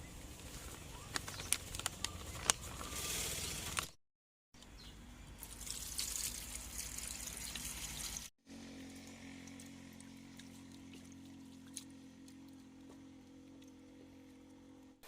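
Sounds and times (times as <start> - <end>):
liquid pouring: 5.4 - 8.3.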